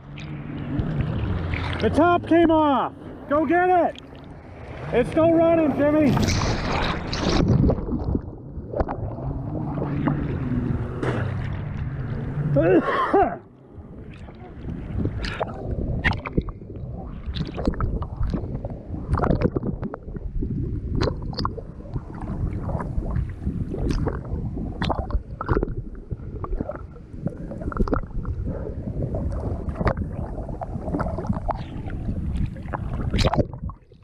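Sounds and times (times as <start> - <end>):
water sloshing and splashing: 0.0 - 34.0
water slaps: 3.9 - 9.0.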